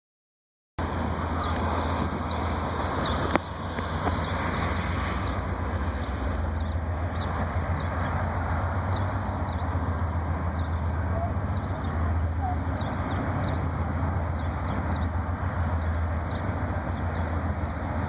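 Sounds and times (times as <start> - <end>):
low vehicle rumble: 0.8 - 18.0.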